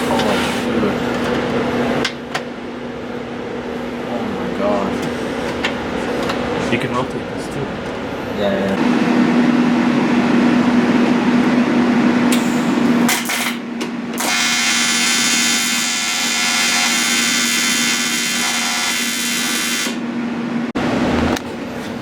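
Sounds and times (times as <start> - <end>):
electric welder buzzing: 12.2 - 20.1
power tool humming: 14.2 - 20.0.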